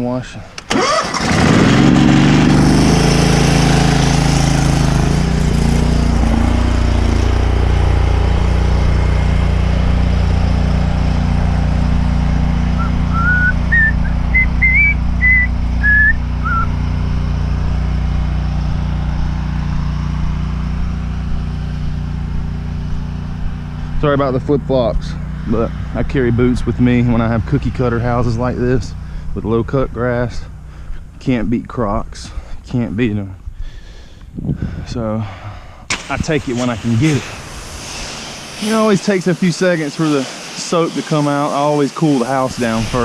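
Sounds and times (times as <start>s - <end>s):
pressure washer engine running: 0.6s - 32.6s, 35.9s - 43.0s
whistled notes: 12.7s - 16.8s.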